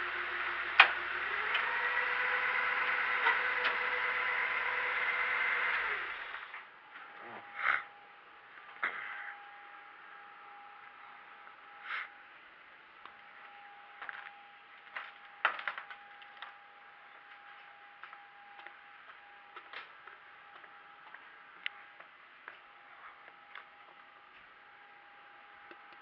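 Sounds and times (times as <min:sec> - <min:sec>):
faint high hum: 0:05.8 - 0:26.0.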